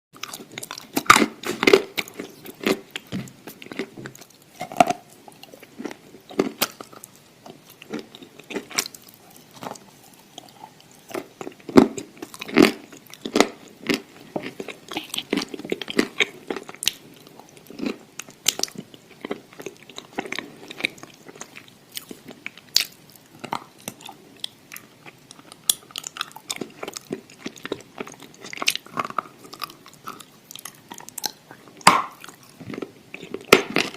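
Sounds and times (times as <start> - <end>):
crunchy food chewing: 0.2 - 33.9.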